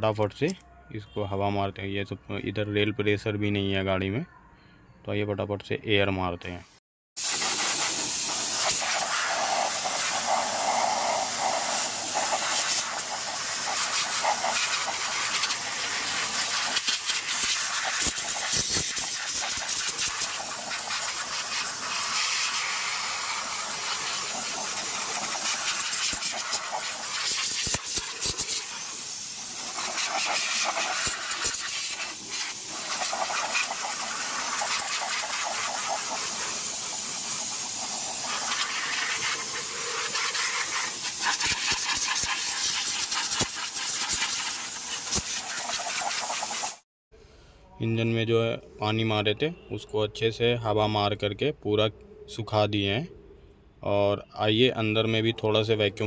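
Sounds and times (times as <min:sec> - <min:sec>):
air blow gun hissing: 0:07.2 - 0:46.8.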